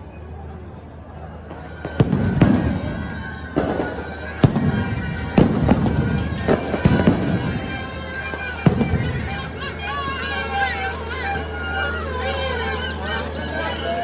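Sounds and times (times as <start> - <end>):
firecrackers banging: 1.4 - 9.8.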